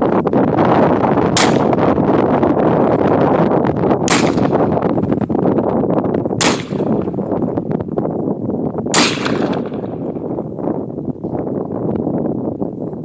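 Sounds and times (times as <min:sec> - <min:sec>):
wind buffeting microphone: 0:00.0 - 0:13.0
rifle shots: 0:01.4 - 0:01.9, 0:04.1 - 0:04.8, 0:06.4 - 0:07.3, 0:08.9 - 0:10.2.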